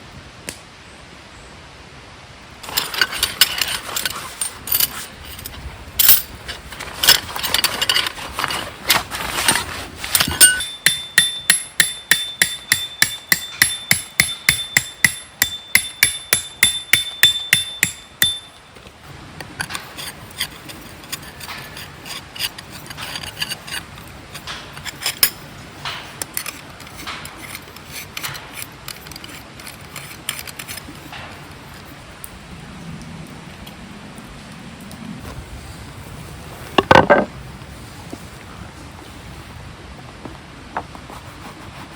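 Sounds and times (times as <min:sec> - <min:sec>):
hammer striking metal: 0:10.4 - 0:18.7.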